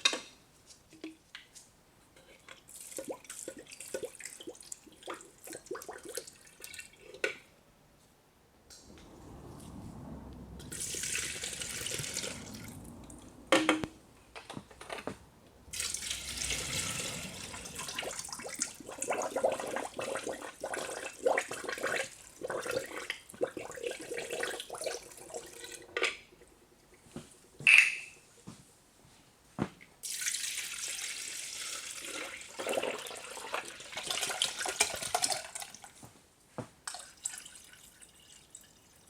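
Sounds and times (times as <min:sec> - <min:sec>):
water running and splashing: 0:15.7 - 0:24.7
knocks and clinks of handling: 0:27.6 - 0:28.2.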